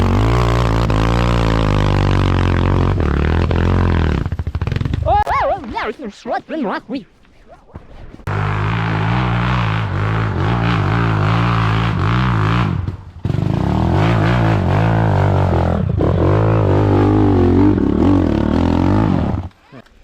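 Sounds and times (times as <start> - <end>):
dirt bike engine revving: 8.3 - 19.4.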